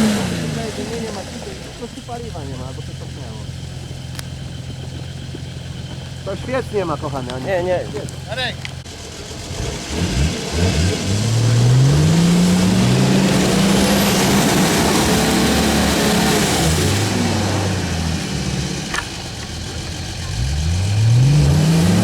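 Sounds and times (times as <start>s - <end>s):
engine revving: 0.0s - 22.0s.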